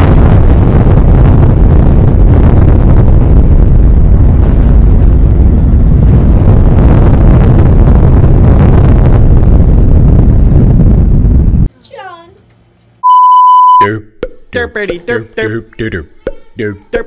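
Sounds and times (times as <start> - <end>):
explosion blast rumble: 0.0 - 11.7.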